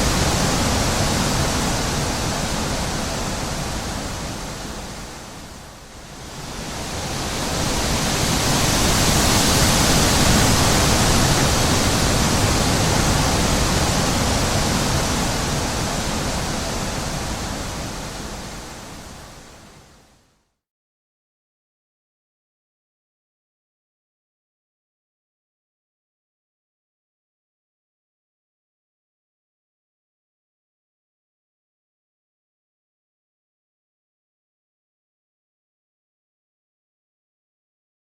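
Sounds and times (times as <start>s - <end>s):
wind blowing: 0.0s - 20.1s.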